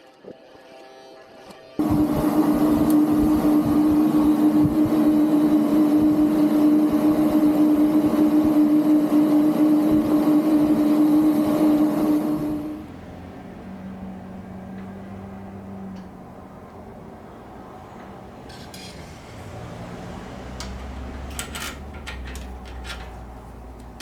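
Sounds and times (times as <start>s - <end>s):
motor running steadily: 1.8s - 18.4s.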